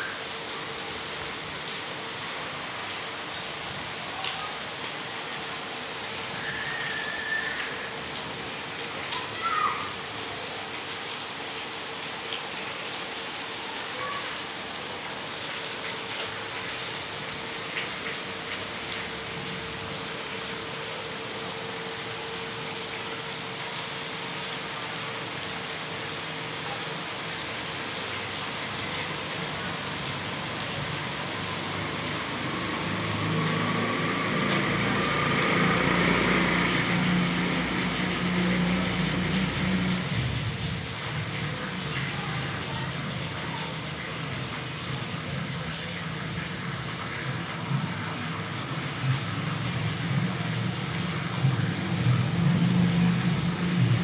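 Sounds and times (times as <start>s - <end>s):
rain on paving and leaves: 0.0s - 54.0s
vehicle engine: 31.6s - 40.7s.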